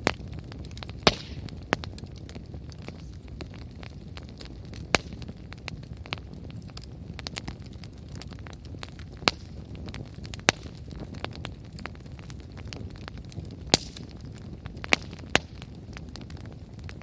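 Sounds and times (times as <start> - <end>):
campfire flame rushing: 0.0 - 17.0
fire crackling: 0.0 - 17.0
sharp pops from fire: 0.0 - 17.0.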